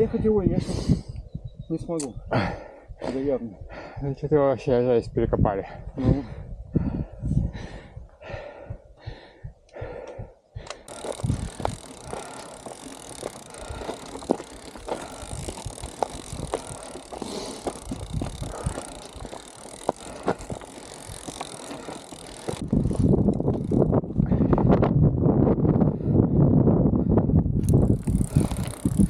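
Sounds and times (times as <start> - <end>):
wind buffeting microphone: 0.0 - 4.2, 5.0 - 29.0
bicycle rattling over rough ground: 10.8 - 24.9, 27.6 - 29.0.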